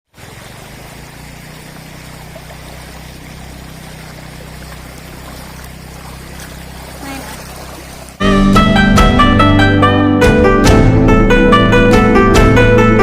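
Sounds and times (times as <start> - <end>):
rush of flowing water: 0.1 - 8.2
low hum: 0.8 - 8.2.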